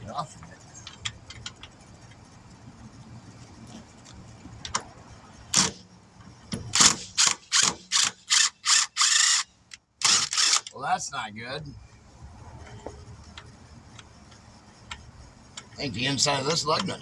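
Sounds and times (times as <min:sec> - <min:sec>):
impact wrench bursts: 0:05.5 - 0:05.8, 0:06.7 - 0:10.8.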